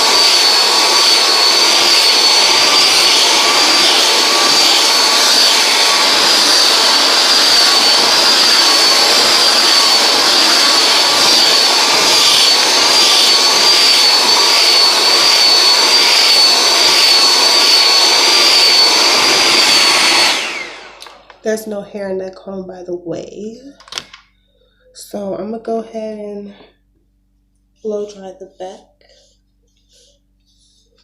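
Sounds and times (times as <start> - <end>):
blow dryer running: 0.0 - 22.1.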